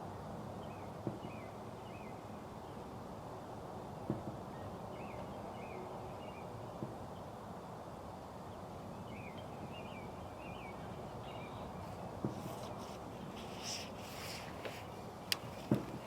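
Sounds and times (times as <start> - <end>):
steady outdoor hiss: 0.0 - 16.0
birds chirping faintly: 8.5 - 16.0.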